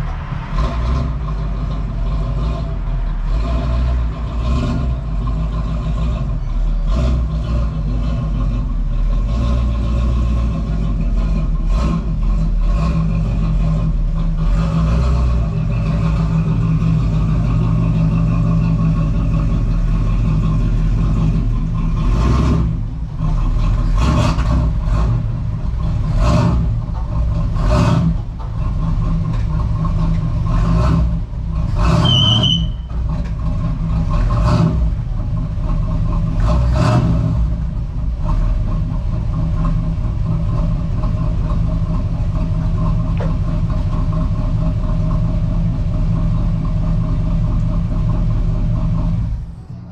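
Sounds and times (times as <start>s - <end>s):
car engine running: 0.0s - 49.9s
brief high squeal: 32.0s - 33.0s.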